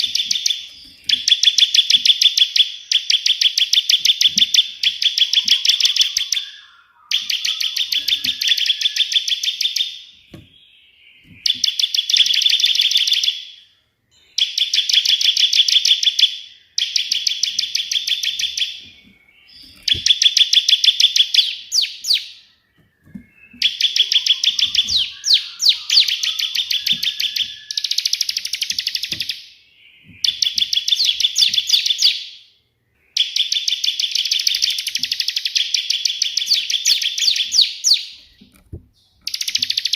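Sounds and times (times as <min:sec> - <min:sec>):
bird singing rapid dry trills: 0:00.0 - 0:13.3, 0:14.6 - 0:32.2, 0:33.9 - 0:39.9.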